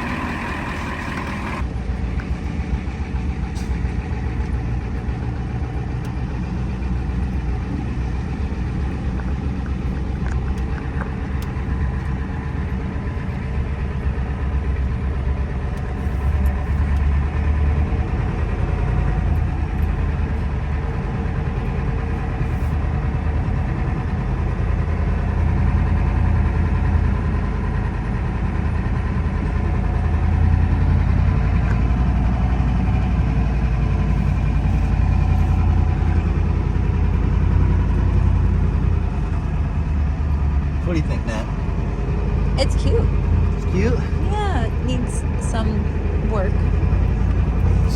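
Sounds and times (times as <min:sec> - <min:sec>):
truck engine rumbling: 0:00.0 - 0:47.9.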